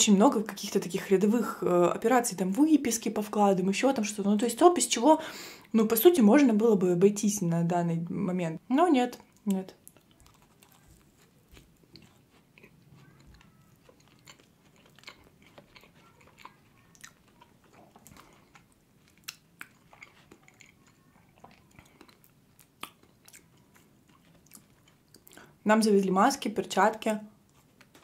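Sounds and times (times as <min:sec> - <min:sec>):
person chewing wetly: 0:09.3 - 0:25.6.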